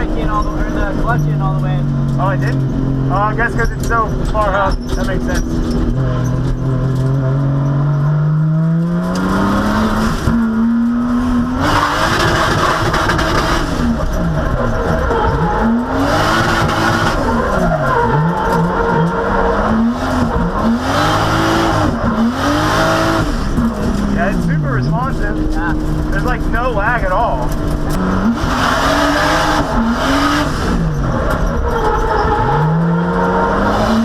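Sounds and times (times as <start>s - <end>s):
car engine revving: 0.0s - 34.0s
tyres squealing: 2.3s - 6.7s, 14.0s - 22.3s, 28.2s - 33.6s.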